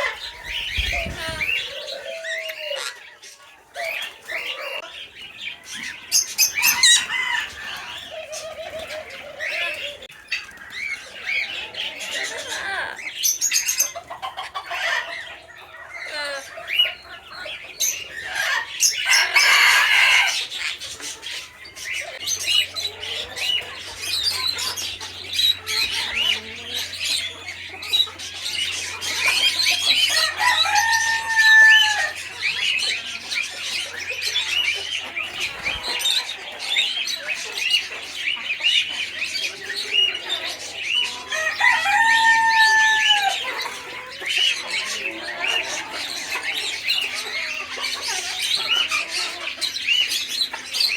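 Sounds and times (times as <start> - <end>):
birds twittering: 0.0 - 50.9
chickens clucking: 0.0 - 50.9
rooster crowing: 19.0 - 20.5, 29.5 - 32.4, 41.2 - 43.8.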